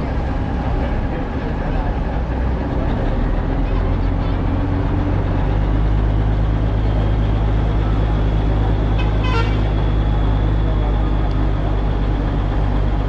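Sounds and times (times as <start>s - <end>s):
heavy engine droning: 0.0s - 13.0s
short horn toot: 9.0s - 9.8s.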